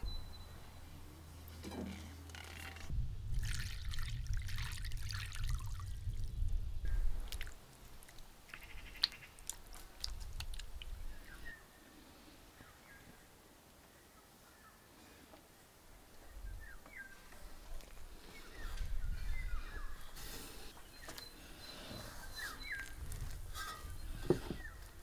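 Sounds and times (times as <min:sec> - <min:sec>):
liquid pouring: 0:02.3 - 0:06.6.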